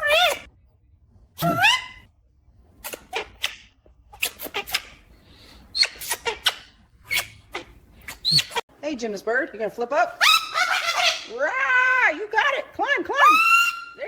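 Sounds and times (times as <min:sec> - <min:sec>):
parrot chirping and squawking: 0:00.0 - 0:00.5, 0:01.4 - 0:02.1, 0:02.8 - 0:08.6, 0:10.1 - 0:11.5, 0:13.2 - 0:14.0.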